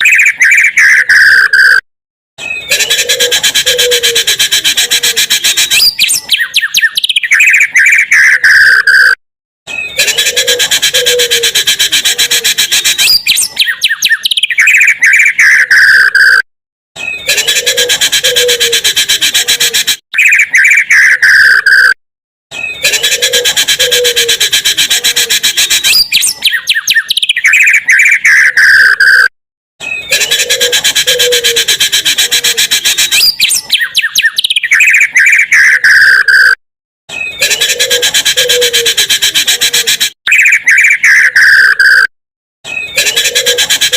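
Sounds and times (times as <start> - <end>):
recorded birdsong: 0.0 - 1.8, 2.4 - 43.9.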